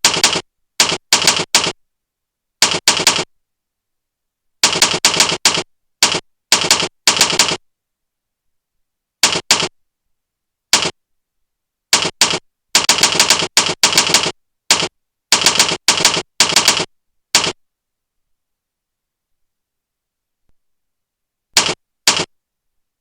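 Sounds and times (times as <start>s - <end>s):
typewriter key clicks: 9.2s - 9.7s, 21.6s - 22.3s.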